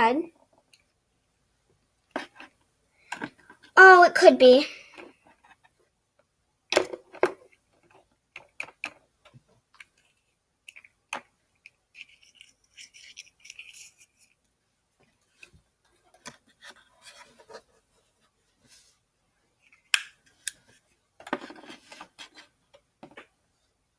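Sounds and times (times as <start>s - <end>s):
plastic toys clicking and tapping: 6.7s - 14.4s
plastic toys scraping: 12.0s - 14.4s, 21.2s - 22.6s.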